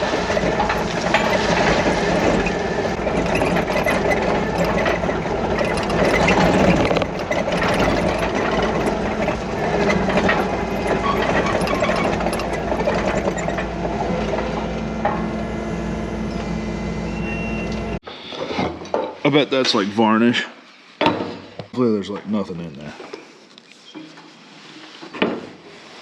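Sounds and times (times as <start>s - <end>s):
light rattles and clicks: 0.0s - 14.4s.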